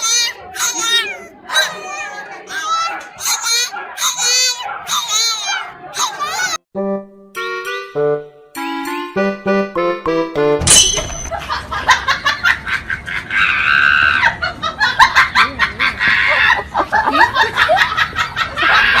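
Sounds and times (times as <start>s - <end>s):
people laughing: 11.2s - 19.0s.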